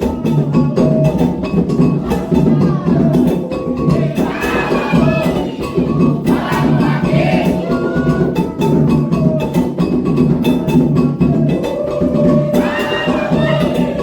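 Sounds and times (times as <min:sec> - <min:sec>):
hand drums: 0:00.0 - 0:14.0
metal bell rhythm: 0:00.0 - 0:14.0
voices singing a chant: 0:00.0 - 0:14.0.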